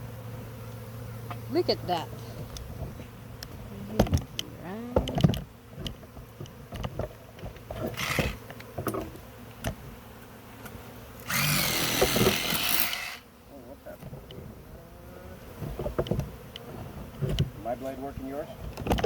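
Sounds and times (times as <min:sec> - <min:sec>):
honeybees buzzing: 0:00.0 - 0:19.0
knocks and clicks of hive handling: 0:02.2 - 0:10.8, 0:14.0 - 0:14.5, 0:15.5 - 0:17.6, 0:18.6 - 0:19.0.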